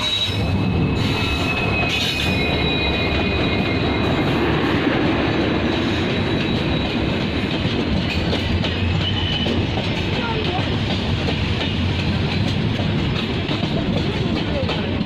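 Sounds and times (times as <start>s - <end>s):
high-pitched brake squeal: 0.0s - 4.8s, 5.8s - 7.2s, 8.9s - 9.7s
train wheels rumbling on track: 0.0s - 15.0s.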